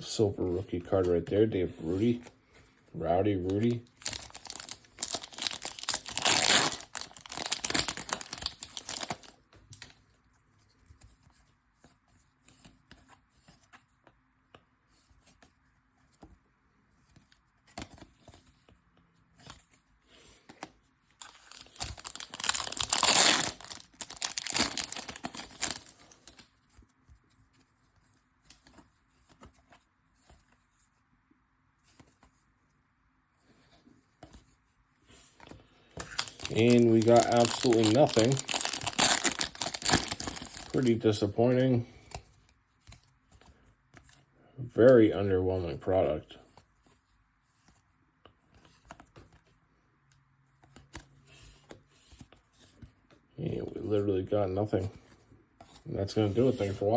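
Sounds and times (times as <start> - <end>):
cards rustling and clicking: 0.5 - 16.4, 17.0 - 30.7, 33.5 - 44.3, 47.6 - 49.6, 54.7 - 56.9
card pack wrappers tearing: 3.5 - 9.3, 21.2 - 26.3, 36.0 - 41.1.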